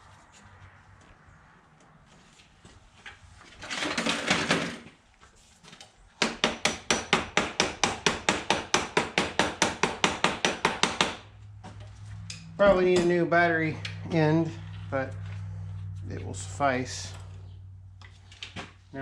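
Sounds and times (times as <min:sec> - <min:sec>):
hammer tapping metal: 0:06.2 - 0:11.2.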